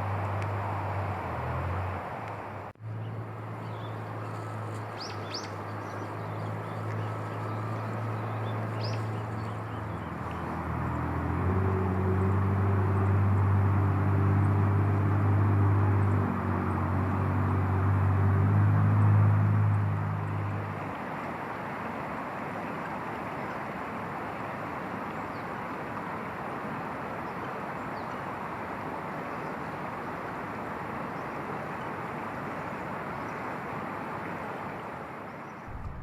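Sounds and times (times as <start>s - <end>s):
bird chirps: 3.0s - 10.6s
low mechanical hum: 35.7s - 36.0s.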